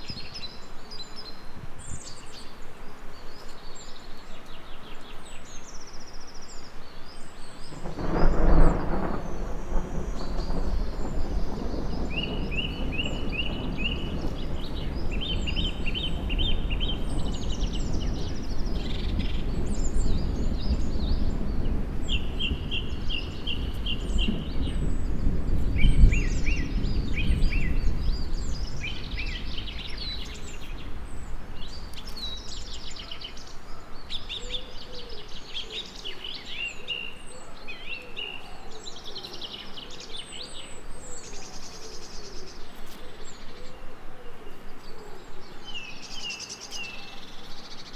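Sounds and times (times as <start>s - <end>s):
small birds chirping and trilling: 0.0s - 47.9s
thunder rumbling: 7.6s - 34.6s.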